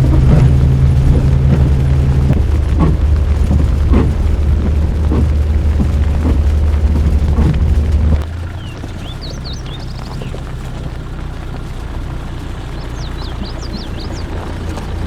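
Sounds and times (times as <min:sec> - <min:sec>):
faint knocks: 0:00.0 - 0:08.2
vehicle engine droning: 0:00.0 - 0:15.0.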